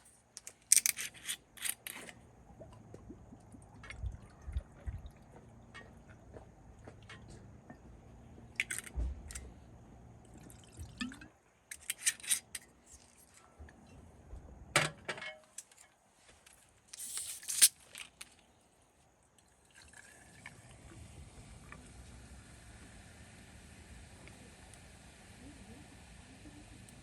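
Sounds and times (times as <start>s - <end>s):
small objects clicking and knocking: 0.3s - 2.2s, 8.6s - 9.4s, 11.7s - 13.3s, 16.9s - 18.5s
liquid pouring and dripping: 2.4s - 7.9s, 10.2s - 11.3s, 19.4s - 23.0s.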